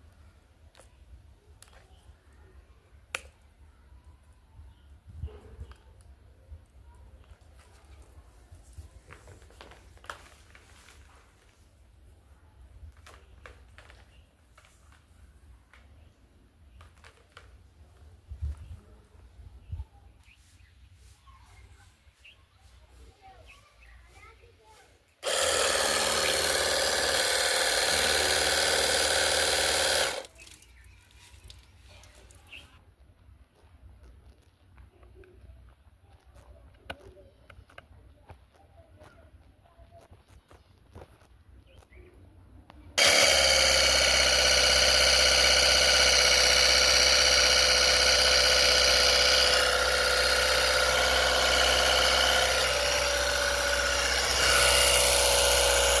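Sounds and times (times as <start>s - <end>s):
small electric motor buzzing: 25.2s - 30.3s, 43.0s - 56.0s.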